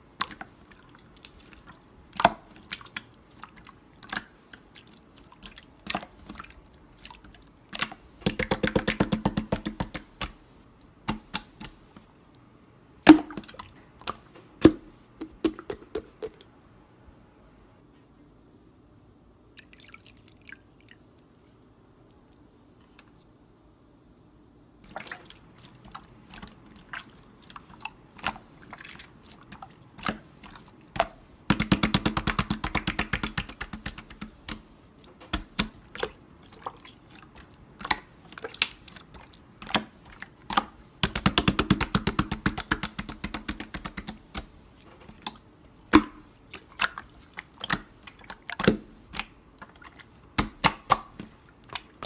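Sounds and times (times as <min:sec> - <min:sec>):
slime clicking and popping: 0:31.0 - 0:34.7, 0:40.5 - 0:44.5, 0:50.4 - 0:52.0.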